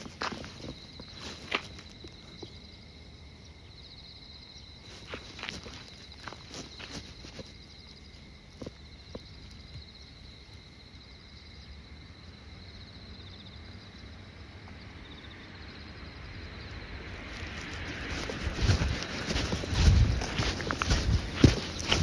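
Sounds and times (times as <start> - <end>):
insects trilling: 0.0 - 22.0
footsteps: 17.3 - 22.0.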